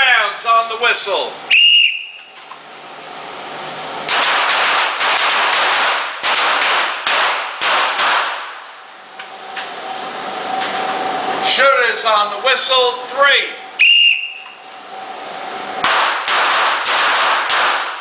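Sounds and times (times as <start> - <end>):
pistol shots echoing: 4.1 - 8.6, 15.8 - 18.0.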